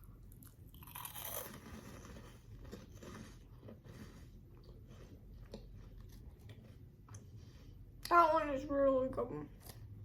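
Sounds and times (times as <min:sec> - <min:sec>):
hard candy crunching in mouth: 0:00.3 - 0:06.6.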